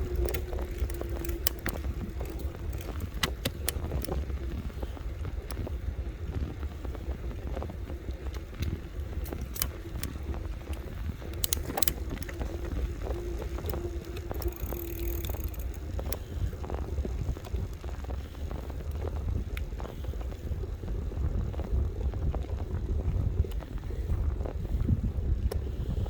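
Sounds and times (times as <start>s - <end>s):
faint steady whine: 0.0s - 18.9s
bike clicking and rattling: 0.0s - 26.0s
wind rumbling on microphone: 0.0s - 26.0s.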